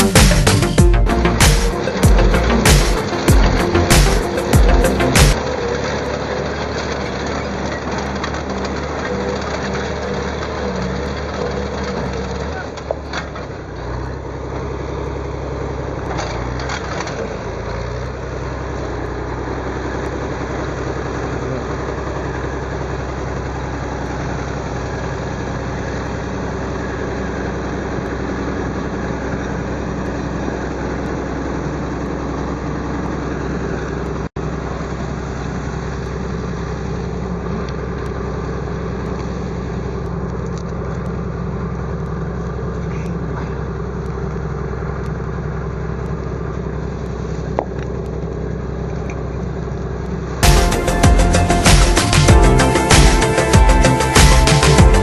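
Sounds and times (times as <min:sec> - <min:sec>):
machine engine running: 0:00.0 - 0:47.4, 0:48.0 - 0:55.0.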